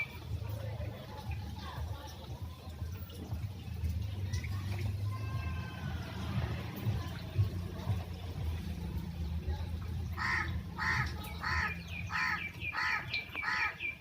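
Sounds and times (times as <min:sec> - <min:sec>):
crow cawing: 0:10.2 - 0:13.8.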